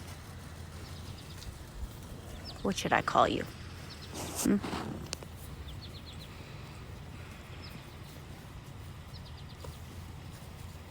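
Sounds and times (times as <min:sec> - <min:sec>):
steady low rumble: 0:00.0 - 0:10.9
small bird chirping: 0:00.7 - 0:01.6, 0:02.3 - 0:03.0, 0:03.8 - 0:06.4, 0:09.0 - 0:10.0.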